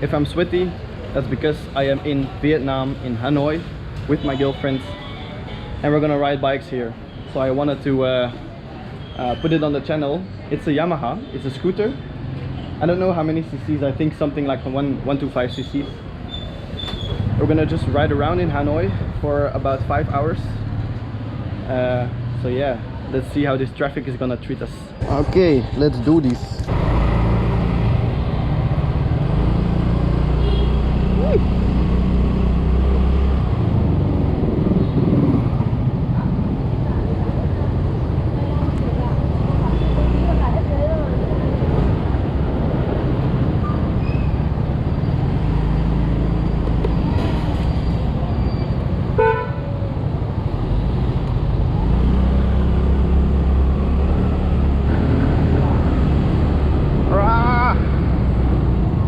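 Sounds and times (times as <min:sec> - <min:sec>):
city traffic: 0:00.0 - 0:59.0
scooter engine rumbling: 0:26.6 - 0:59.0
vehicle horn toot: 0:30.4 - 0:30.9, 0:49.2 - 0:49.7.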